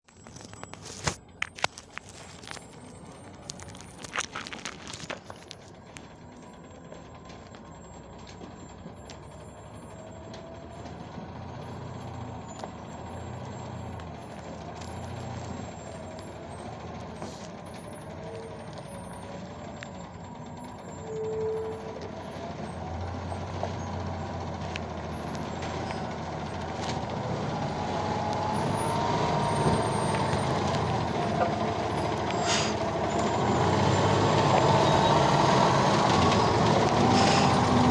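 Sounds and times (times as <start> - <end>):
truck engine rumble: 0.0 - 37.9.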